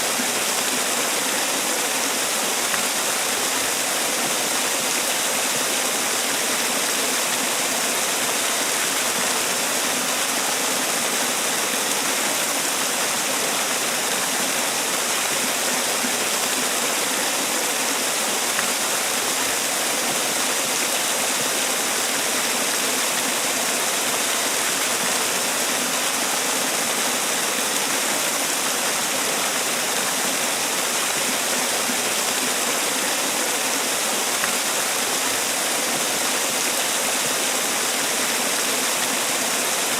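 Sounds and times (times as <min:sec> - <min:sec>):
waterfall splashing: 0:00.0 - 0:39.9.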